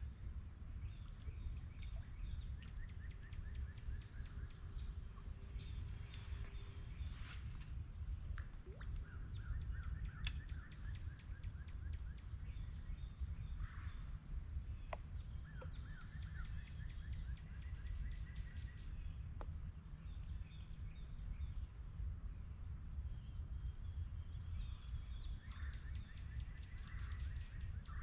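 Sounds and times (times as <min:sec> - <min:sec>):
songbird chirping: 0:00.8 - 0:21.6.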